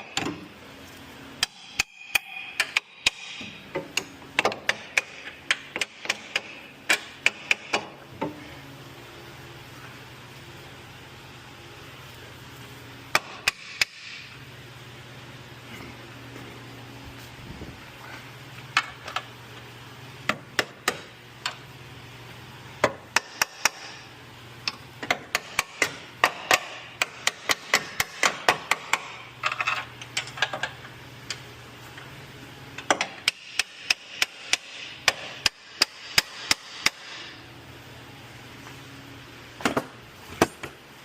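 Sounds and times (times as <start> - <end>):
hammer striking metal: 1.4 - 3.6.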